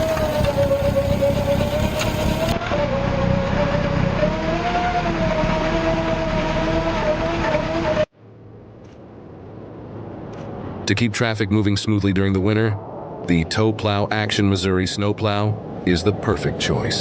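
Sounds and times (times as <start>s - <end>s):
snow machine engine running: 0.0s - 3.5s.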